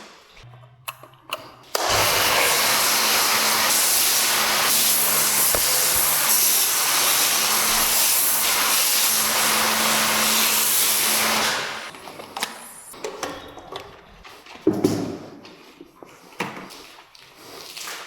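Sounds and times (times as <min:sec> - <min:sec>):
high-pressure sprayer hissing: 0:01.9 - 0:11.9.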